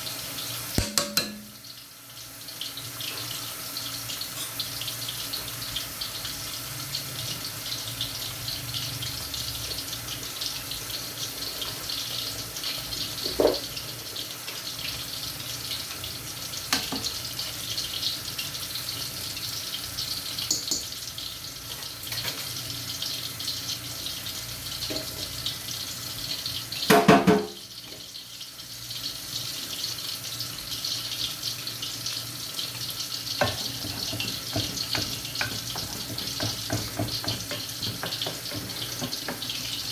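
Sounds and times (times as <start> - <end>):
kitchen hiss with crackling: 0.0 - 39.9
cookware clunking: 0.8 - 1.6, 13.3 - 13.6, 20.5 - 20.9, 26.9 - 27.6.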